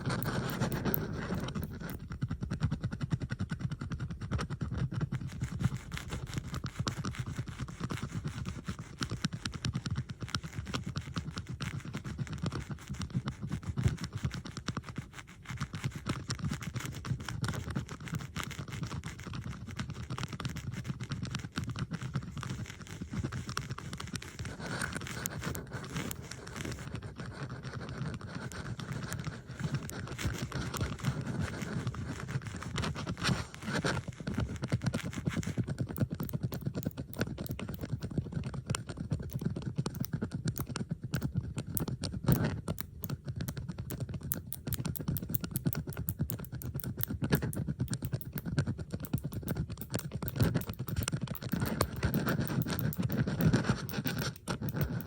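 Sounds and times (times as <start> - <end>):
bobby pins clicking and scraping: 0.0 - 2.2, 16.1 - 55.0.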